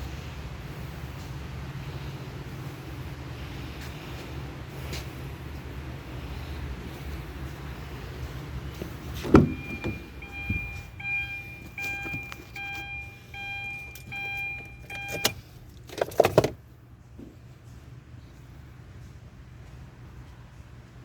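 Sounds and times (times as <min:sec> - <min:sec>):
vehicle warning chime beeping: 0:08.8 - 0:15.5
loud clunk: 0:09.2 - 0:10.7.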